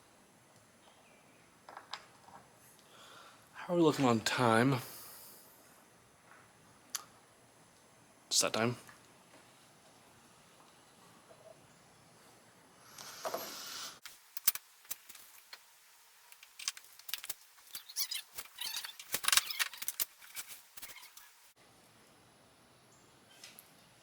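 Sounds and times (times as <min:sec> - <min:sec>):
brief hiss: 0:12.8 - 0:14.1.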